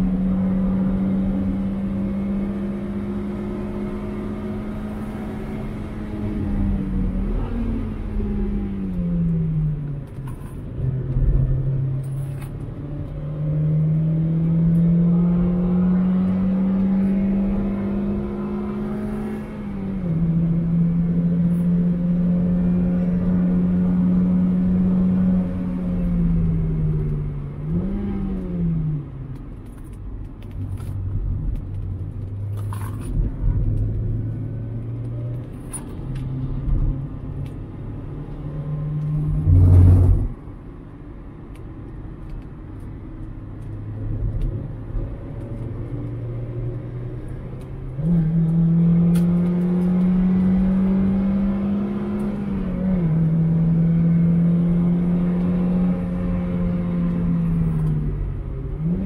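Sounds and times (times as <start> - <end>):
car engine revving: 13.0 - 28.7, 32.0 - 40.4, 44.4 - 59.0.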